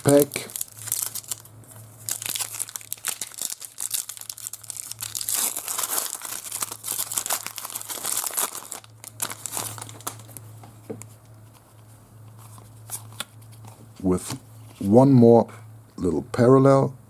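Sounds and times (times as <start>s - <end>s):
plastic wrapper tearing and crinkling: 0.0s - 10.4s
low electrical hum: 0.0s - 17.0s.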